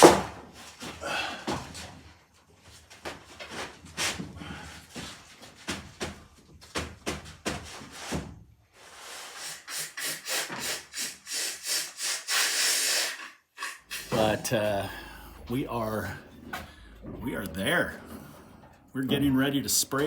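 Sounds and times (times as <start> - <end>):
rhythmic scraping strokes: 13.8 - 20.0.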